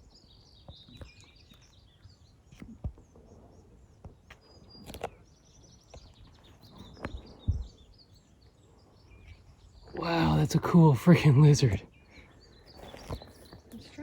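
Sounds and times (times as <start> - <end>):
faint outdoor background noise: 0.0 - 14.0
small birds chirping: 0.0 - 14.0
sharp knocks and soft thumps: 2.5 - 3.2, 6.7 - 7.8.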